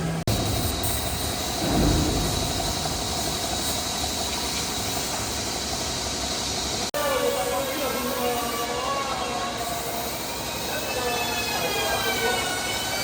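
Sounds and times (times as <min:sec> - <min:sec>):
machine whining: 0:00.3 - 0:06.3.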